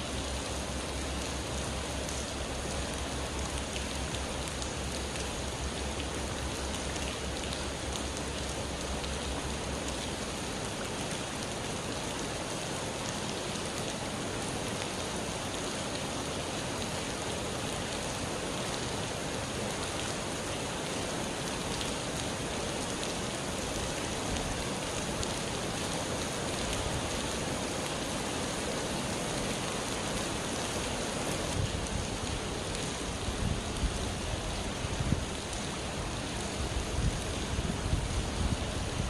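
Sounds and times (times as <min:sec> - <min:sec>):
rain pattering on surfaces: 0:00.0 - 0:39.0.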